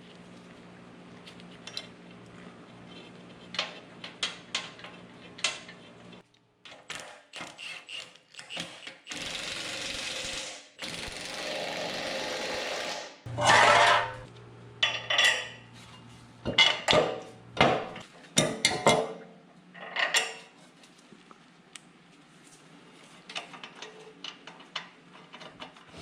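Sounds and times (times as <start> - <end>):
metal parts clanking: 13.3 - 15.2.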